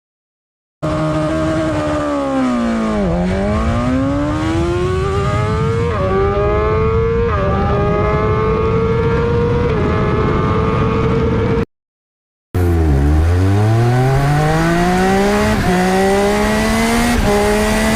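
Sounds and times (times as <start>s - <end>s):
motorcycle engine revving: 0.8s - 11.6s, 12.6s - 17.9s.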